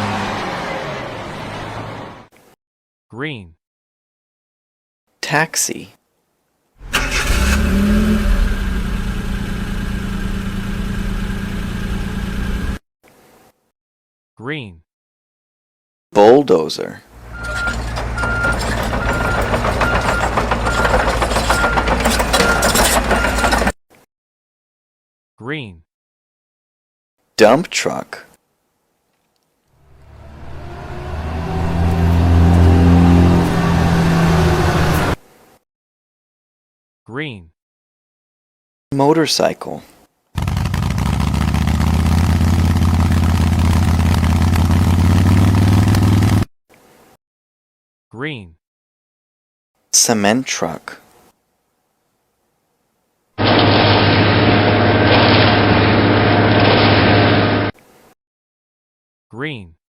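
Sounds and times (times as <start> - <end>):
diesel engine droning and clattering: 6.8 - 12.8, 17.2 - 23.8, 29.9 - 35.2, 40.4 - 46.5, 53.4 - 57.7
motorcycle engine running: 8.3 - 12.8, 40.4 - 46.4
reversing alarm beeping: 17.3 - 23.6.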